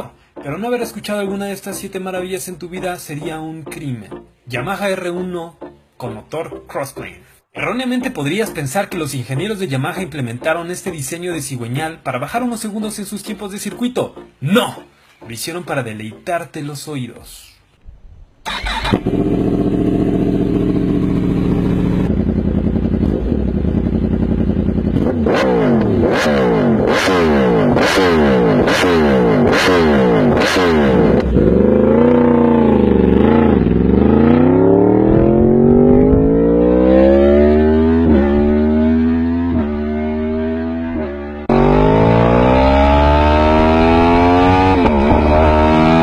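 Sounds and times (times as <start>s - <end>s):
motorcycle engine revving and accelerating: 18.5s - 46.0s.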